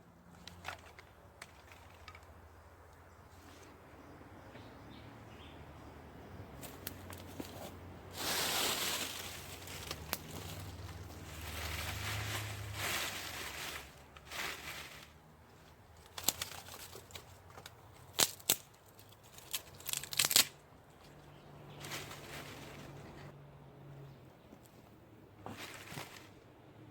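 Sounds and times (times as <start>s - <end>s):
rustling and crinkling handling: 0.3s - 2.4s, 6.6s - 23.3s, 24.5s - 26.4s.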